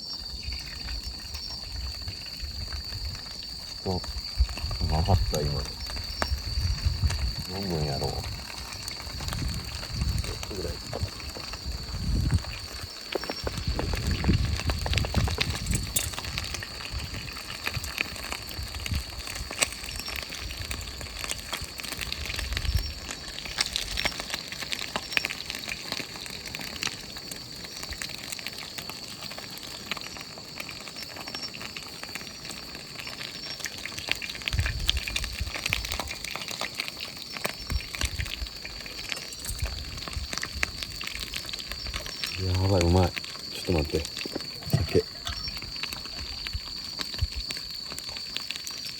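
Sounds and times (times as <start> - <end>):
crackles and pops: 0.0 - 48.9
oil sizzling: 31.6 - 48.9.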